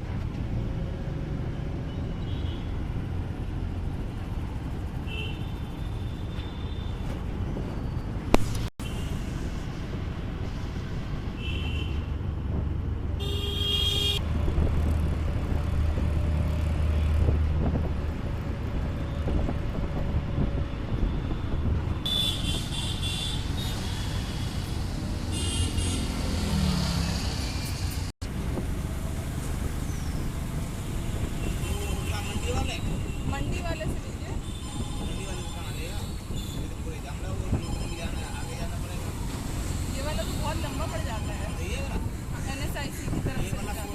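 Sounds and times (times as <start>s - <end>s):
vehicle rumbling on the move: 0.0s - 43.9s
vehicle horns honking: 13.2s - 14.2s, 22.0s - 24.4s, 25.3s - 26.3s, 31.4s - 33.4s, 34.4s - 36.7s.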